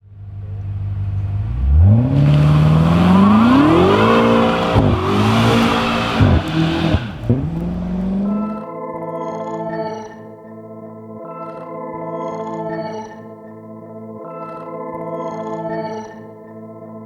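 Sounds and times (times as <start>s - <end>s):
car engine revving and accelerating: 0.1s - 8.6s.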